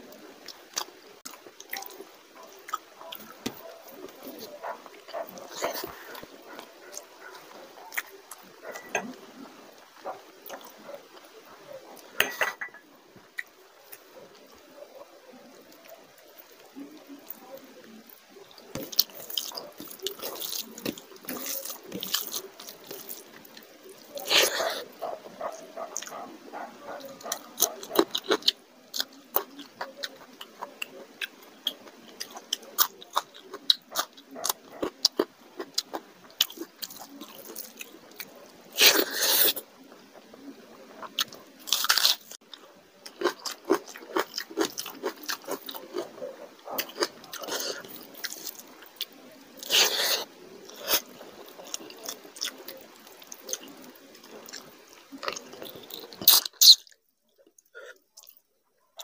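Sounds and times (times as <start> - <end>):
crunching bite of chilli: 0.4 - 11.3, 13.3 - 58.4
chewing and biting food: 18.5 - 57.6.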